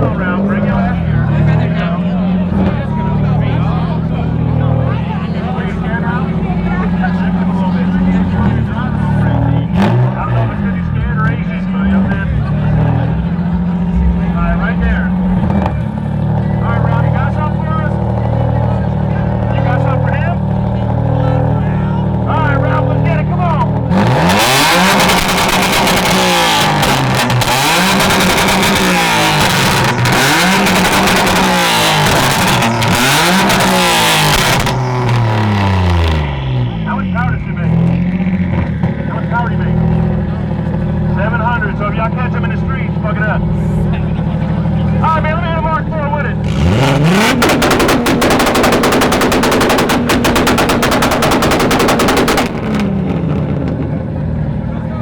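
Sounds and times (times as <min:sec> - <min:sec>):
car engine revving hard: 0:00.0 - 0:38.9, 0:46.4 - 0:54.6
exhaust pops: 0:23.4 - 0:37.2, 0:46.5 - 0:54.3.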